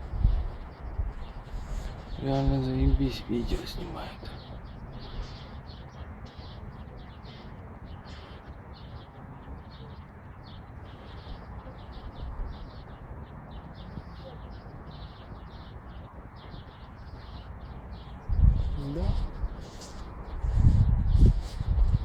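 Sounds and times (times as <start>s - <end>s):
birds chirping: 0.0s - 22.0s
steady low rumble: 16.5s - 22.0s.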